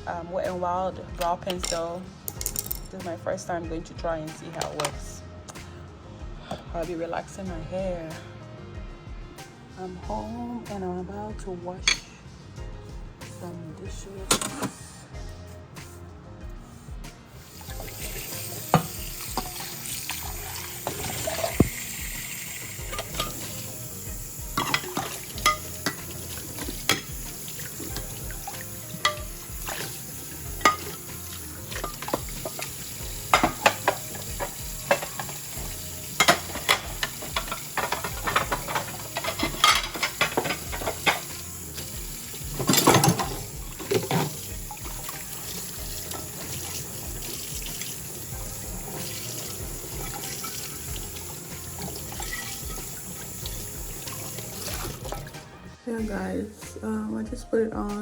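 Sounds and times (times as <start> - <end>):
tap running: 17.4 - 55.3
dishes clinking: 17.7 - 23.8, 24.5 - 47.2, 48.8 - 55.3.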